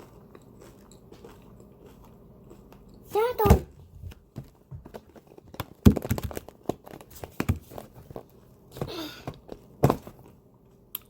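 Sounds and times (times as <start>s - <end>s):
crunchy food chewing: 0.0s - 3.1s.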